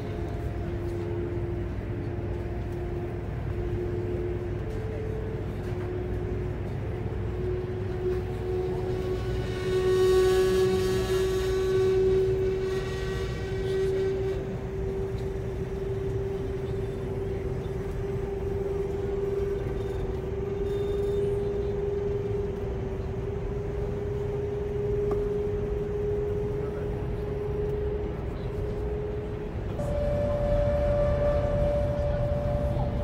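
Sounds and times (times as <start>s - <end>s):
constant hum: 0.0s - 33.0s
train cabin low rumble: 0.0s - 33.0s
faint high tones: 29.8s - 33.0s.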